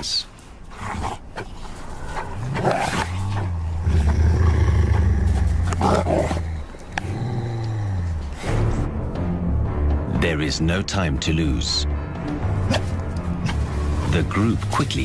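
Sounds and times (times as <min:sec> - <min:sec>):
wolves snarling: 0:00.6 - 0:08.9, 0:12.5 - 0:14.1
wolf deep growl: 0:00.7 - 0:08.9.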